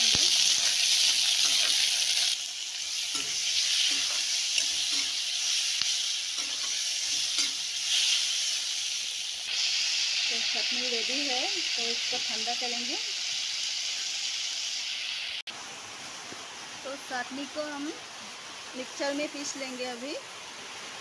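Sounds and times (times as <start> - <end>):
vegetables sizzling in a pan: 0.0 - 21.0
spoon scraping a pan: 0.5 - 2.3, 2.9 - 8.5.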